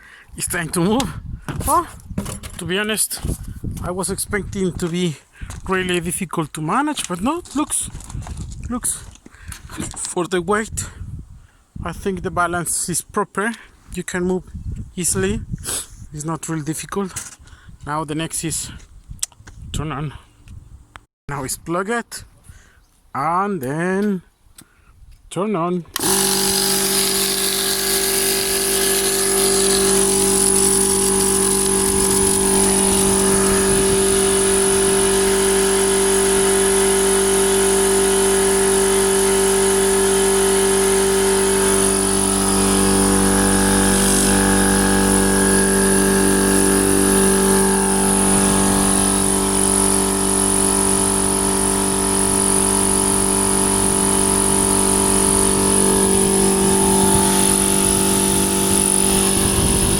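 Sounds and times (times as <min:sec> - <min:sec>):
air compressor running: 0:26.0 - 0:59.9.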